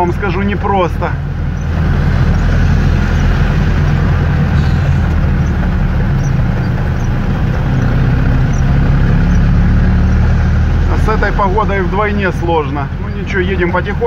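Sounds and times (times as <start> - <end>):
car engine running: 0.0 - 14.0
rain and wet tyres hiss: 1.8 - 9.5.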